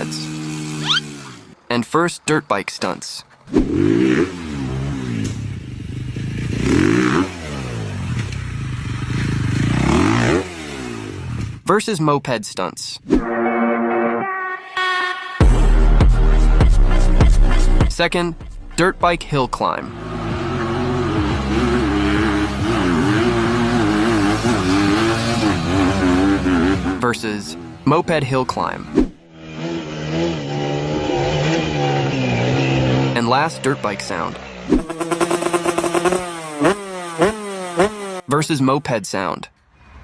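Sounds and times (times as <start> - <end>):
dirt bike engine revving: 0.0 - 1.8, 3.5 - 11.6, 18.8 - 38.6.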